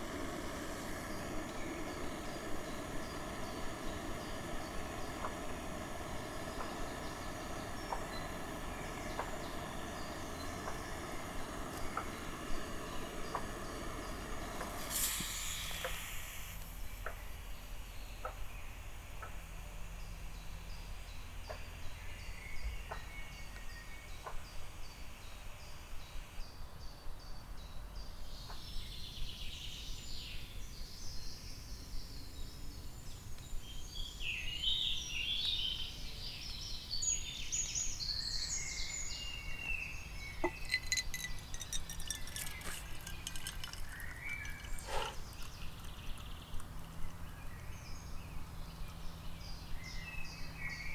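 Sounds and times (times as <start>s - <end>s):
small birds chirping: 0.0s - 50.9s
low steady rumble: 40.2s - 49.9s.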